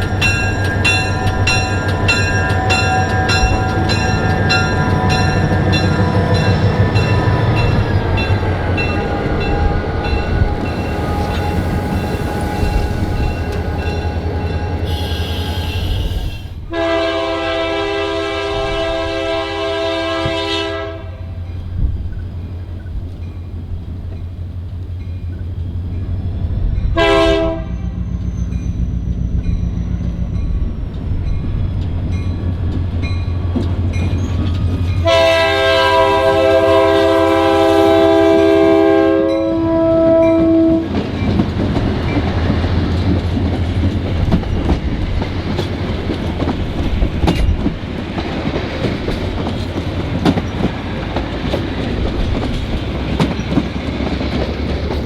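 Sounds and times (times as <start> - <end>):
train wheels clattering on rails: 0.0 - 16.5, 28.1 - 38.6, 40.3 - 55.0
locomotive engine rumbling: 0.0 - 55.0
train air horn blasts: 8.9 - 21.3, 27.0 - 28.0, 35.0 - 40.9.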